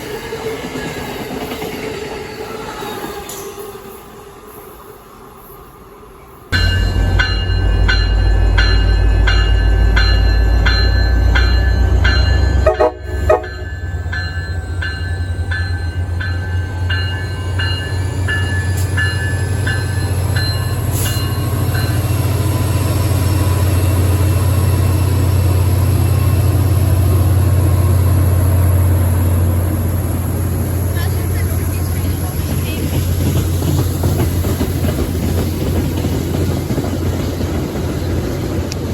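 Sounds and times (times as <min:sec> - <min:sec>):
train rumbling: 0:00.0 - 0:38.9
locomotive bell clanging: 0:06.6 - 0:25.4.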